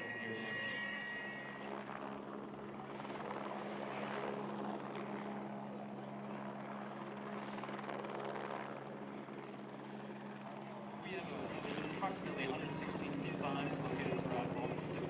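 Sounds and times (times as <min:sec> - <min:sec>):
aircraft rushing roar: 0:00.0 - 0:01.9.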